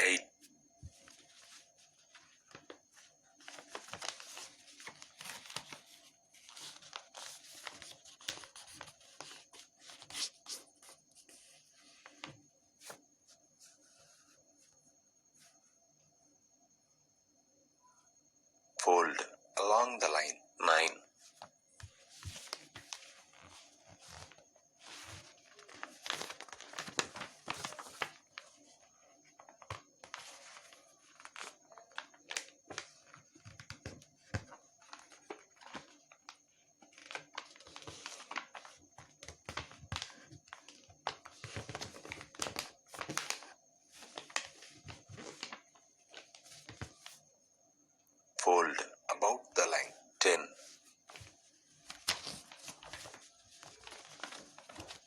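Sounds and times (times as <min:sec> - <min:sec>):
paper being folded and creased: 0:00.9 - 0:13.0, 0:21.4 - 0:47.2, 0:50.6 - 0:55.0.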